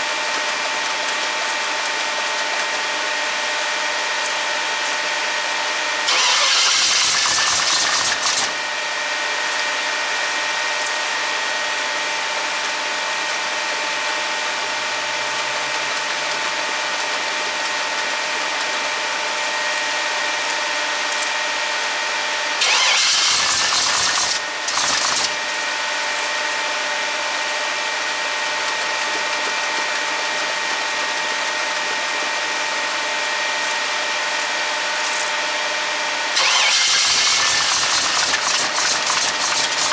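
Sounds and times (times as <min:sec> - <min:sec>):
engine cranking on starter: 0:06.0 - 0:08.6, 0:22.6 - 0:25.4, 0:36.4 - 0:39.9.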